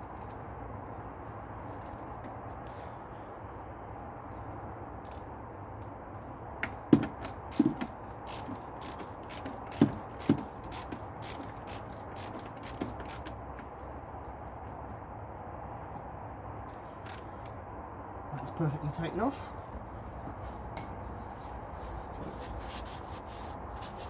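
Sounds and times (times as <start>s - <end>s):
socket ratchet clicking: 7.5s - 13.4s, 17.0s - 17.6s.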